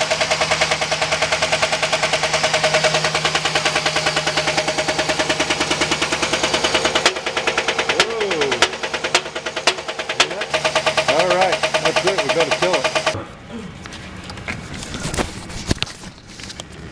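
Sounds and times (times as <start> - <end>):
engine knocking rapidly: 0.0 - 13.2.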